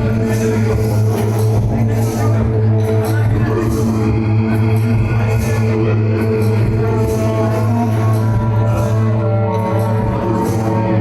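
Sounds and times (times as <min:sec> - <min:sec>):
techno music: 0:00.0 - 0:11.0.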